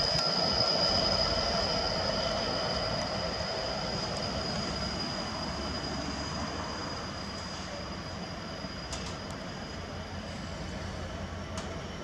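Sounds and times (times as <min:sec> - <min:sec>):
high-pitched squeal: 0:00.0 - 0:11.2
freight train rumbling: 0:00.0 - 0:12.0.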